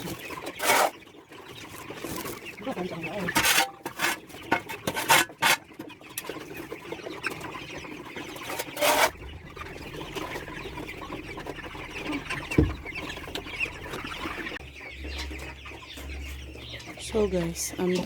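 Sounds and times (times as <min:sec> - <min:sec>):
chickens clucking: 0:00.0 - 0:18.0
dull thump: 0:09.2 - 0:14.5.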